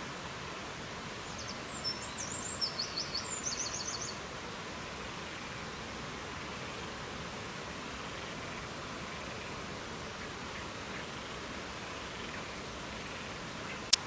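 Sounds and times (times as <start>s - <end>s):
rushing wind or water: 0.0s - 14.0s
songbird singing trills: 1.4s - 4.2s.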